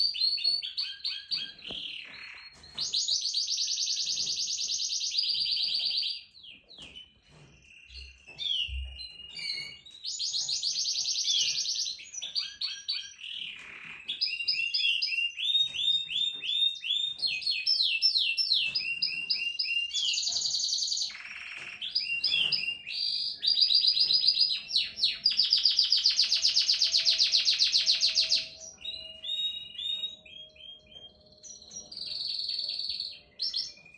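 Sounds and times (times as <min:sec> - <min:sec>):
canary singing: 0:00.0 - 0:33.9.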